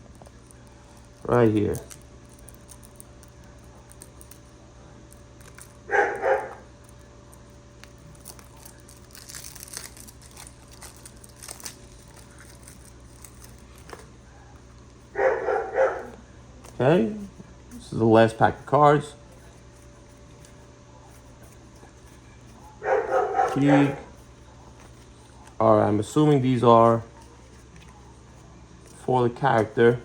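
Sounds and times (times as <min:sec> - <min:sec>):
plastic wrap crinkling and tearing: 0:00.0 - 0:04.5, 0:05.1 - 0:14.1
dog barking: 0:05.9 - 0:06.6, 0:15.1 - 0:16.2, 0:22.6 - 0:24.8.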